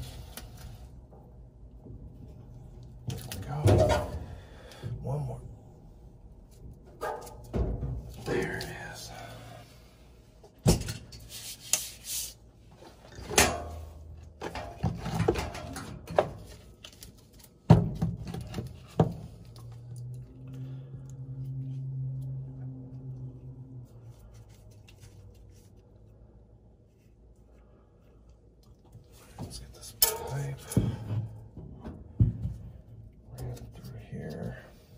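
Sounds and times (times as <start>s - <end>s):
low steady hum: 0.0s - 34.9s
metal parts knocking and clattering: 13.1s - 16.4s.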